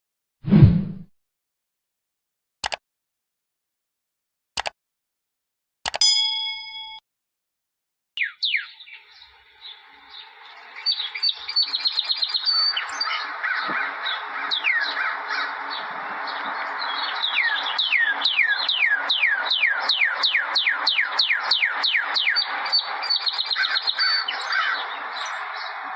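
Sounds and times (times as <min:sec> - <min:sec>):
bell-like ding: 0:06.0 - 0:07.0
birds chirping: 0:08.2 - 0:25.9.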